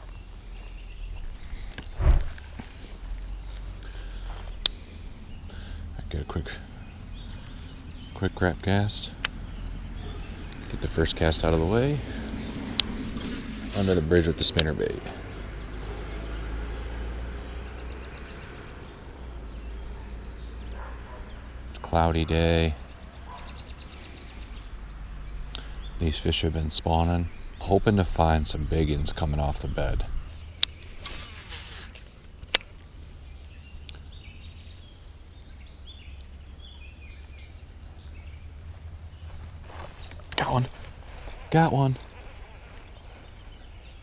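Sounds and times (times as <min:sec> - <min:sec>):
low outdoor rumble: 0:00.0 - 0:31.0, 0:31.6 - 0:44.0
small birds chirping: 0:00.0 - 0:44.0
steady low rumble: 0:00.4 - 0:14.2.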